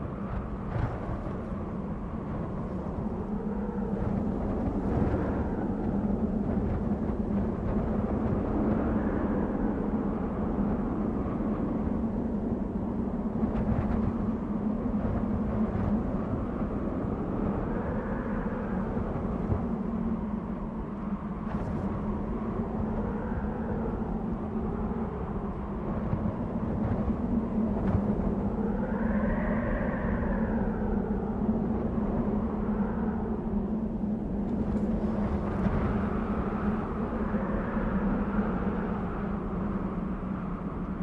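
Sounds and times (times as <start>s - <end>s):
wind blowing with whistling gusts: 0.0s - 41.0s.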